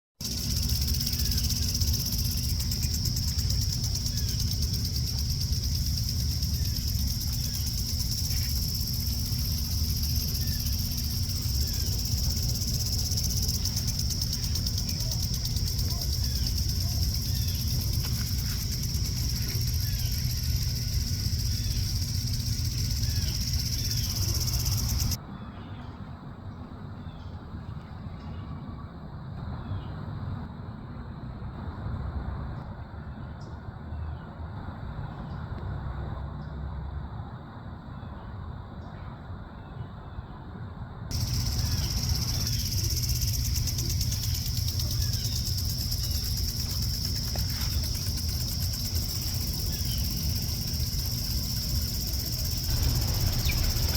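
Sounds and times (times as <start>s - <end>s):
crickets trilling: 0.2s - 25.2s, 41.1s - 53.9s
pulsing insect chorus: 0.2s - 25.2s, 41.1s - 53.9s
faint bird chirps: 0.2s - 25.9s, 41.1s - 53.9s
low rumble: 41.1s - 53.9s.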